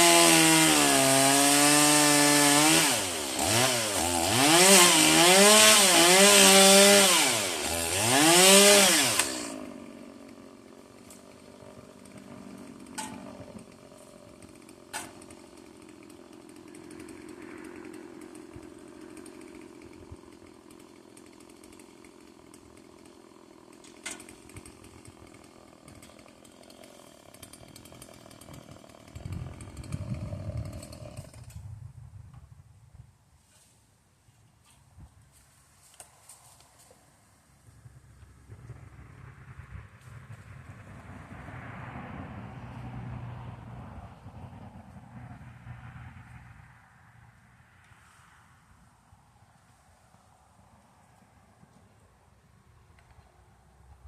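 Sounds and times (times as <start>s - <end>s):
chainsaw engine revving: 0.0s - 31.6s.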